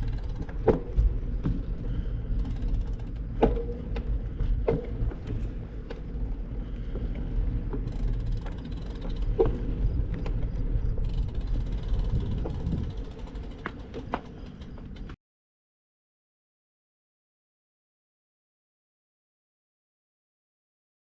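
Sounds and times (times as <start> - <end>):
freewheel ratchet ticking: 0.0 - 0.7, 2.3 - 3.6, 7.8 - 9.8, 11.0 - 15.2
bicycle creaks and knocks: 0.0 - 15.2
road and wind rumble: 0.0 - 15.2.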